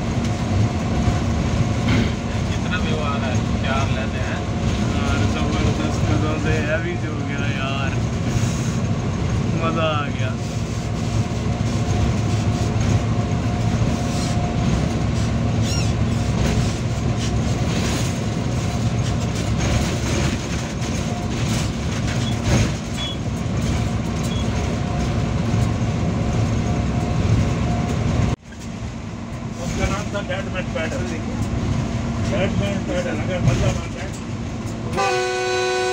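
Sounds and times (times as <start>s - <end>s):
locomotive engine and wheels droning: 0.0s - 35.9s
track clacks: 0.0s - 35.9s.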